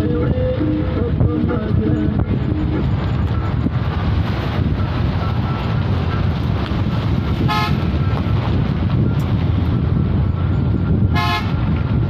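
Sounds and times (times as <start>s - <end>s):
vehicle rumble on road: 0.0s - 12.0s
vehicle horn toots: 7.4s - 8.0s, 11.1s - 11.7s.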